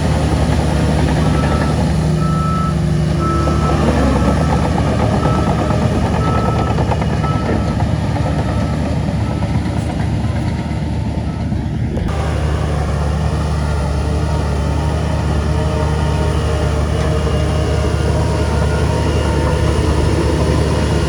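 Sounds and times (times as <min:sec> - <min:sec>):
heavy diesel machinery running: 0:00.0 - 0:21.0
vehicle reversing beeper: 0:00.3 - 0:14.5, 0:17.4 - 0:21.0.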